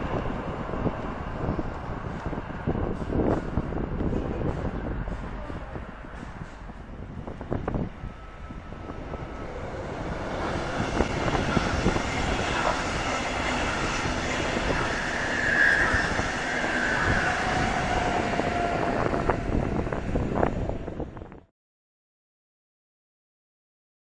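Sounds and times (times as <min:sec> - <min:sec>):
train wheels rumbling and clicking: 0:00.0 - 0:20.9
high wheel squeals: 0:08.0 - 0:20.0.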